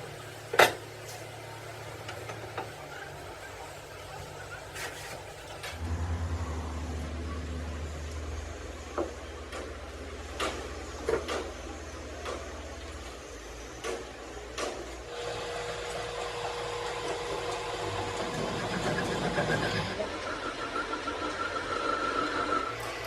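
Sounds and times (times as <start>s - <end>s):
machine whine: 5.6s - 14.5s
low engine hum: 5.8s - 13.1s.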